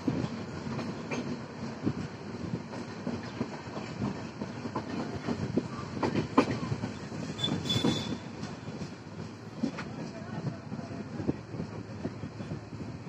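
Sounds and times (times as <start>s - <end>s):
train coach rumbling: 0.0s - 13.0s
high-pitched wheel squeal: 7.4s - 8.3s.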